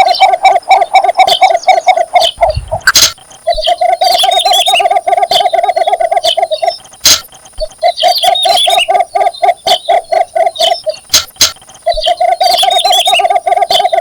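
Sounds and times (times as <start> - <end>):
bird chirps: 0.0 - 14.0
sharp clicks: 2.2 - 8.7, 10.5 - 13.0.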